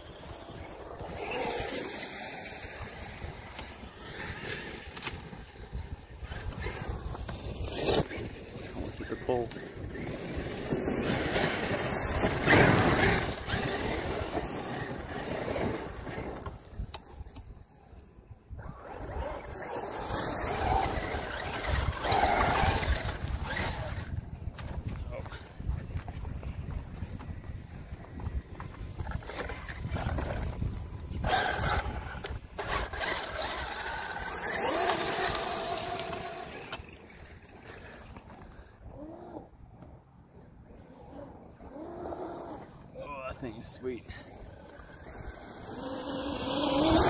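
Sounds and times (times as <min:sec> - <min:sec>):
wind rumble on microphone: 0:00.0 - 0:36.5
electric rc truck motor: 0:00.0 - 0:47.0
tyres on bumpy ground: 0:00.0 - 0:47.0
electric motor whining: 0:29.1 - 0:39.5, 0:44.0 - 0:47.0.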